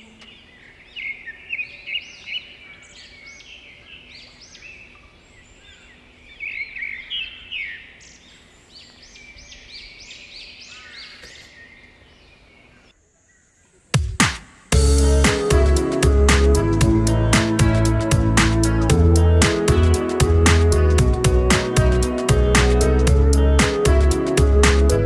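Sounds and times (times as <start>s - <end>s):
songbirds chirping and trilling: 0.0s - 13.9s.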